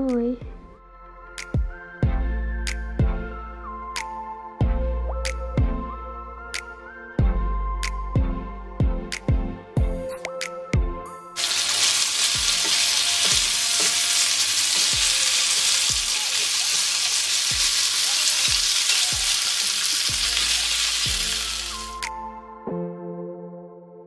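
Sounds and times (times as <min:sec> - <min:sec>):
tongs tossing food: 0:11.4 - 0:22.0
vegetables sizzling in a frying pan: 0:11.4 - 0:22.0
music beat: 0:18.5 - 0:22.3.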